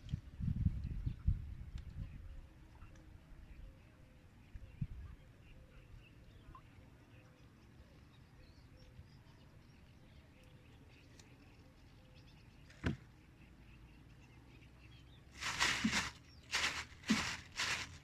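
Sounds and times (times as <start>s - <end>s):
faint bird chirps: 0.9s - 15.3s.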